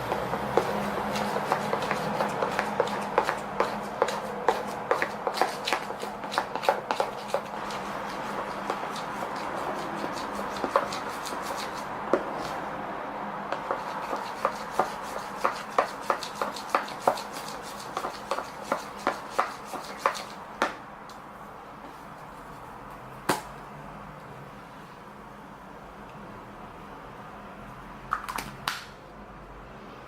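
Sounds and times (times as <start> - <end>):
stirring scraping: 0.0 - 12.7, 13.5 - 20.4.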